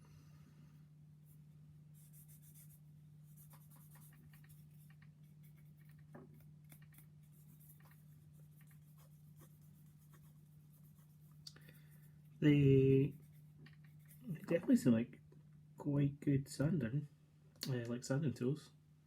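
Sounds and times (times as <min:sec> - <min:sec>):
steady low hum: 0:00.0 - 0:19.0
sanding stick scratching plastic: 0:02.0 - 0:11.4.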